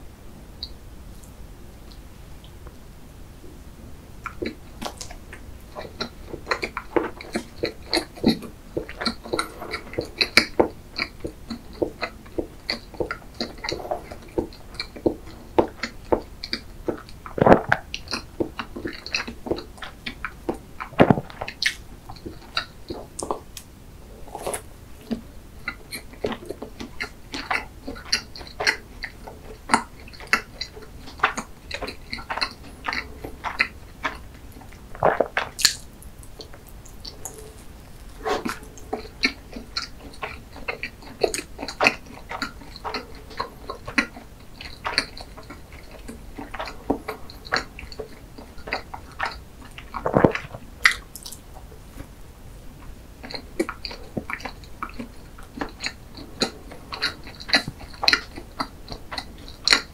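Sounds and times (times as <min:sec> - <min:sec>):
soft wet chewing: 0:04.1 - 0:59.9
mouth clicks and lip smacks: 0:24.4 - 0:51.7, 0:52.8 - 0:59.9.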